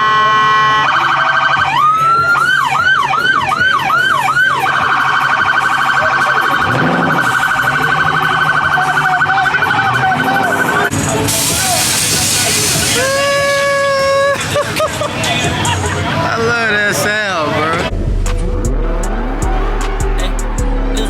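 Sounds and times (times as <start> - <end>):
electronic police siren: 0.0 - 10.9.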